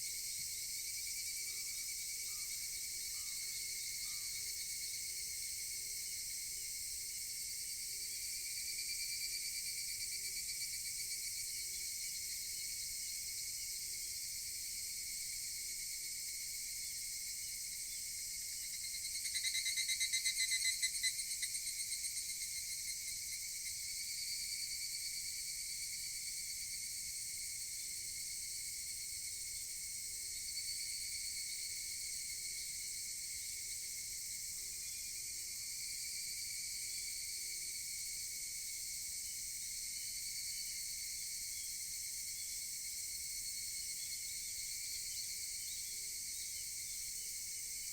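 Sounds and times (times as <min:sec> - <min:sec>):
high-pitched insect chorus: 0:00.0 - 0:47.9
cicada calling: 0:19.1 - 0:22.7.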